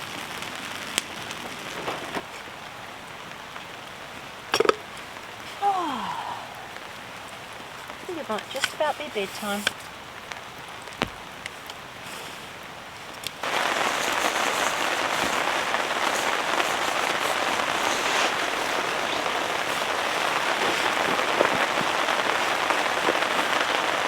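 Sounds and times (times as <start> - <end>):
heavy rain on a tent: 0.0 - 24.0.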